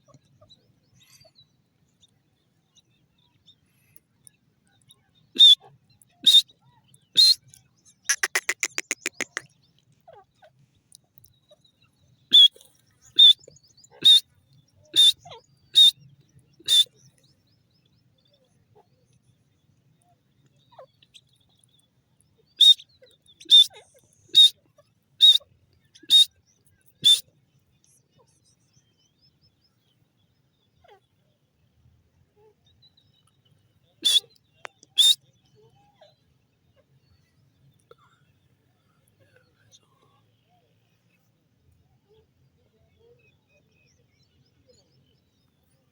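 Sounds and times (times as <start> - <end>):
bird high-pitched calls: 5.4 - 5.6, 6.2 - 6.5, 7.1 - 7.4, 8.1 - 9.5, 12.3 - 16.0, 16.6 - 17.0, 22.6 - 24.6, 25.2 - 25.4, 26.0 - 26.3, 27.0 - 27.2, 34.0 - 35.2
bird rattling chatter: 8.1 - 9.4.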